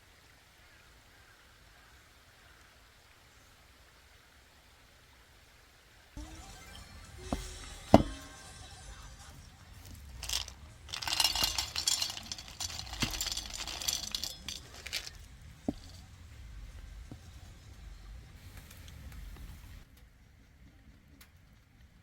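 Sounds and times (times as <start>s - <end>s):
dishes and utensils clinking: 6.2s - 16.1s
rustling with small clicks: 9.8s - 17.8s.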